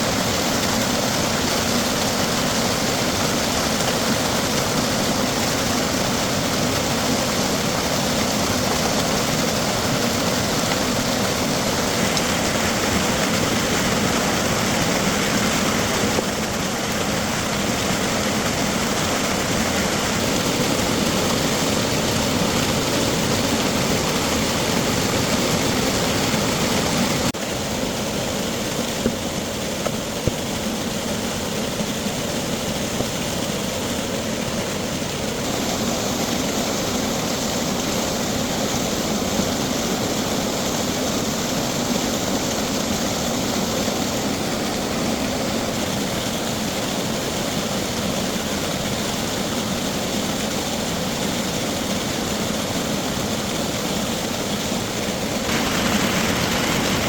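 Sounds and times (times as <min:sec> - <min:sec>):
machine whirring: 0:55.4 - 0:57.0.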